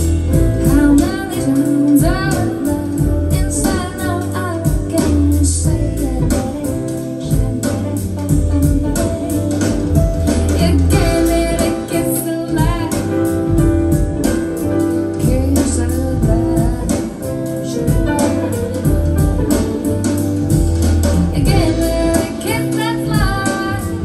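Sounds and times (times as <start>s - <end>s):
person singing: 0.0s - 13.6s, 21.3s - 24.0s
steady bass line: 0.0s - 24.0s.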